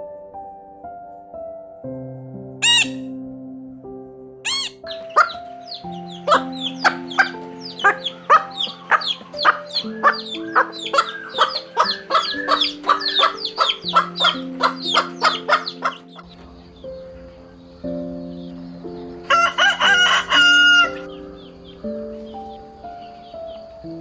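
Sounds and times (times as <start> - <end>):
background music: 0.0 - 24.0
bird clucking calls: 2.6 - 3.0, 4.5 - 16.4.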